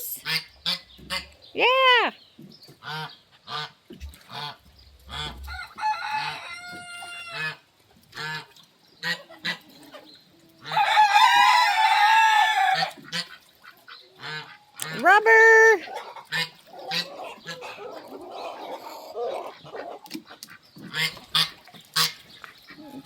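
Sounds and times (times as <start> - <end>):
chickens clucking: 2.4 - 15.2, 15.8 - 23.0
rooster crowing: 5.5 - 7.5, 10.8 - 12.9.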